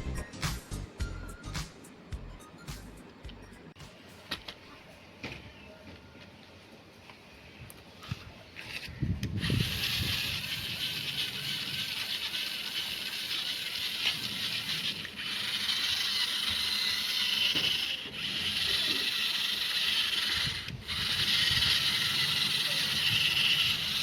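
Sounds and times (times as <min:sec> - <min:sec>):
small gear motors whirring: 0:08.0 - 0:24.0.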